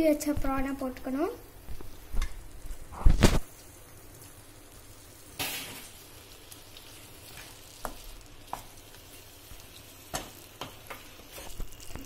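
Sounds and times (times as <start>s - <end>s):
prawns sizzling in a pan: 0.0s - 12.0s.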